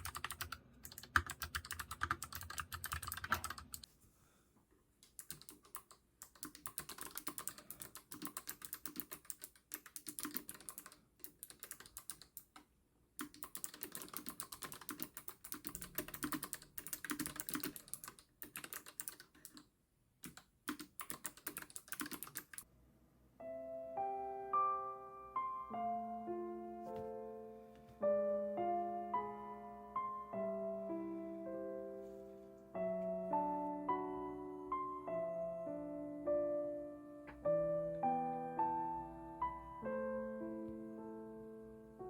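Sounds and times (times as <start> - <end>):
mechanical keyboard typing: 0.0 - 3.9, 5.0 - 22.7
piano music: 23.3 - 42.0.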